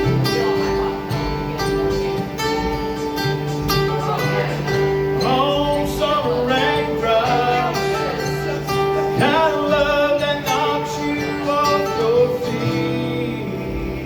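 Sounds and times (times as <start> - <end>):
lead guitar fills: 0.0 - 14.0
strummed rhythm guitar: 0.0 - 14.0
person singing: 4.0 - 14.0.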